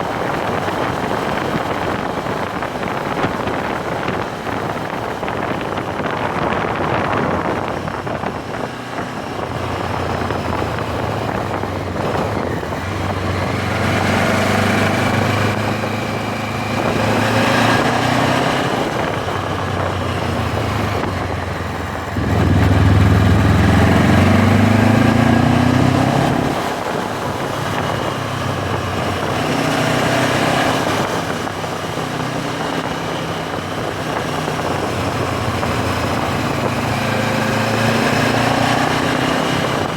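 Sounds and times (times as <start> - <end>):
motorcycle engine accelerating: 0.0 - 39.9
wind noise on microphone: 0.0 - 39.9.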